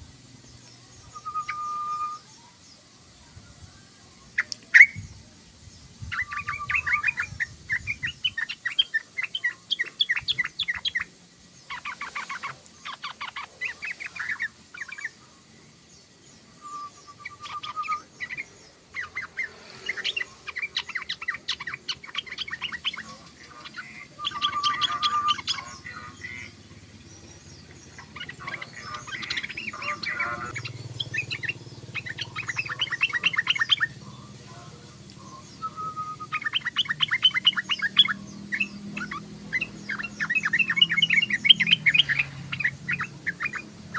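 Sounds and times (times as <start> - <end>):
bird chattering song: 0.0 - 2.9, 4.2 - 43.9
bird whistle: 1.1 - 2.3, 4.8 - 5.0, 16.6 - 18.1, 24.2 - 25.7, 35.3 - 39.2.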